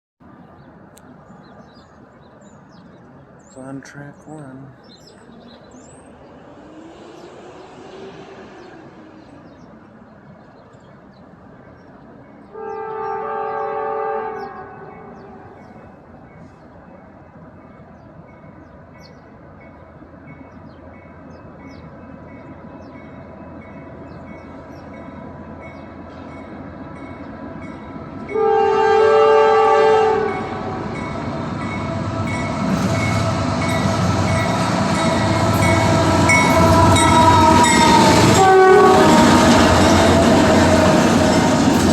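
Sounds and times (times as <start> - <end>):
diesel locomotive rumble: 14.4 - 41.9.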